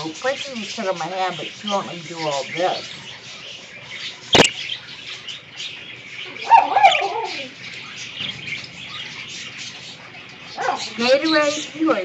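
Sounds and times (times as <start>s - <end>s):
budgerigars chattering: 0.0s - 12.0s
wavering bird cry: 0.0s - 12.0s
sharp click: 4.3s - 4.6s.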